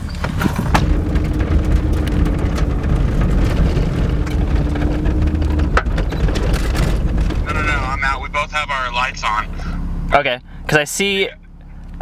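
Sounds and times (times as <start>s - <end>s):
small rattles and knocks: 0.0s - 8.2s
truck driving on dirt track: 0.0s - 12.0s.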